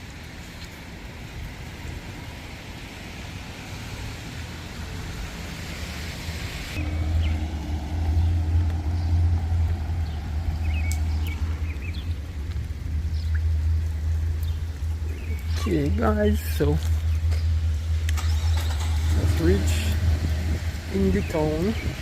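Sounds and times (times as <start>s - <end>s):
tyre hiss on wet road: 0.0s - 12.7s
traffic low rumble: 0.0s - 22.0s.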